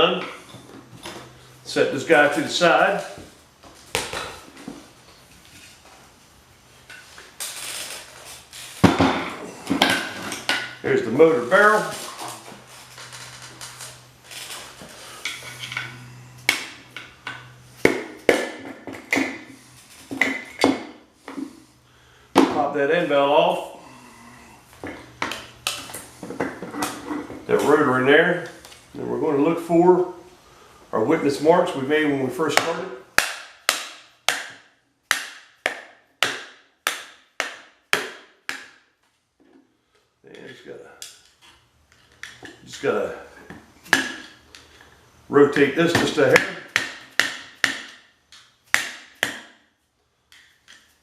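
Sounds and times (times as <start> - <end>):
steady low hum: 0.0 - 33.2.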